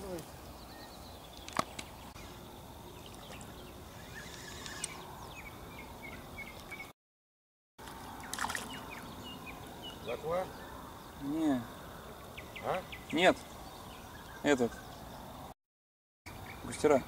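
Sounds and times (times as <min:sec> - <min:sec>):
small bird chirping: 0:00.0 - 0:06.9
riverbank ambience: 0:00.0 - 0:07.0, 0:07.8 - 0:15.6, 0:16.3 - 0:17.0.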